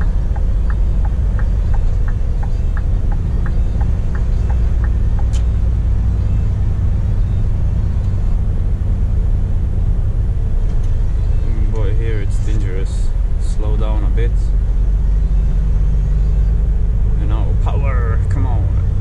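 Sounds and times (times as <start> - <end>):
regular ticking: 0.0 - 6.0
truck engine and road rumble: 0.0 - 19.0.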